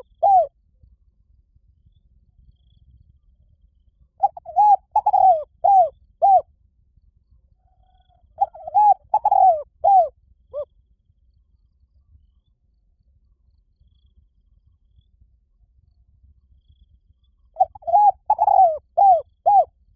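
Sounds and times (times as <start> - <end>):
dove cooing: 0.0 - 0.5, 4.2 - 6.4, 7.8 - 10.1, 17.6 - 19.7.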